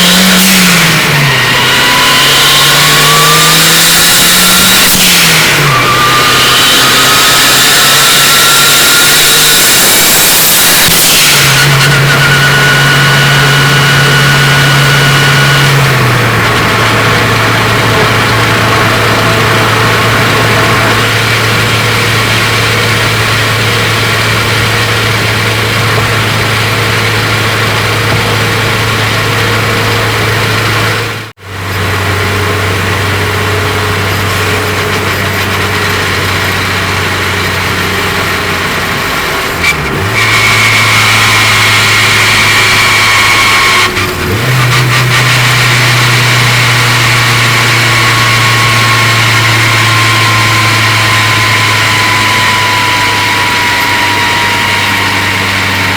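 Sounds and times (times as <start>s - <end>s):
car engine running: 0.0s - 55.9s.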